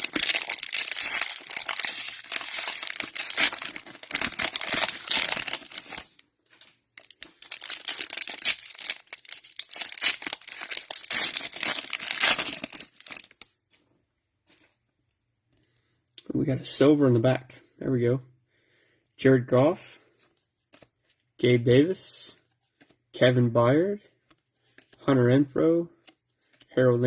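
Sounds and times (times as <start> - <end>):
plastic wrapper crinkling and tearing: 0.0 - 13.5.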